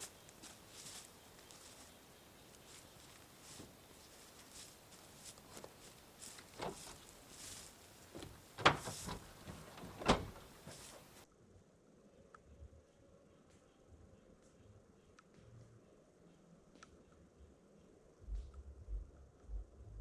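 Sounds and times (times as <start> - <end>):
rustling and handling noises: 0.0 - 11.2.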